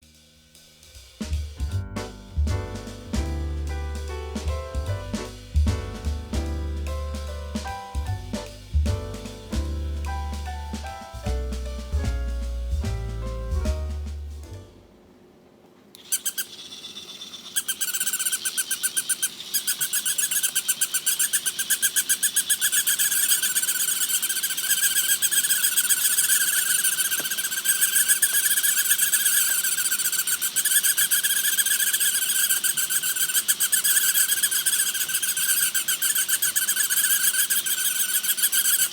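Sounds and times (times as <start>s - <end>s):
toy dog high chirping pulse: 16.0s - 38.9s.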